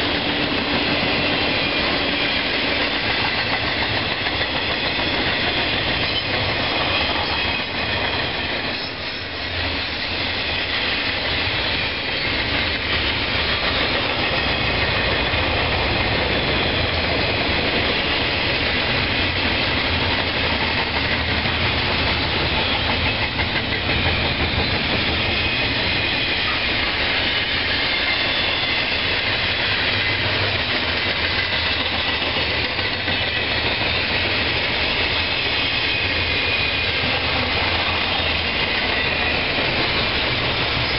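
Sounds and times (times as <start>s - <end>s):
train rolling past: 0.0s - 40.9s.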